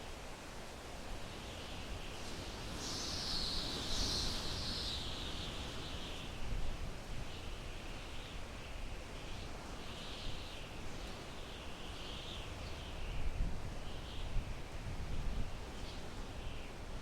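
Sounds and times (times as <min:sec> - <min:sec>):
wind through pine trees: 0:00.0 - 0:17.0.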